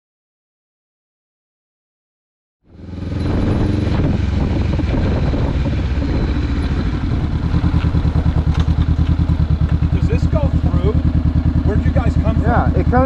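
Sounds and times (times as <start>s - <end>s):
motorcycle engine idling: 2.7s - 13.0s.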